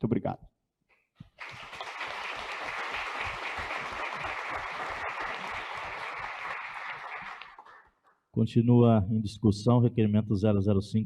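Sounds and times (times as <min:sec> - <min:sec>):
audience applauding: 0:01.3 - 0:08.0.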